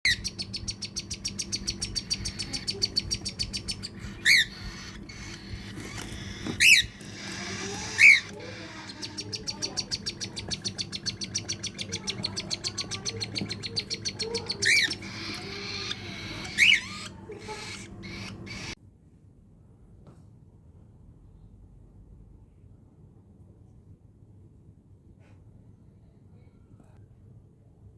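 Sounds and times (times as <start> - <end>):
fast high bird chirps: 0.1 - 18.8
sharp bird calls: 0.1 - 18.8.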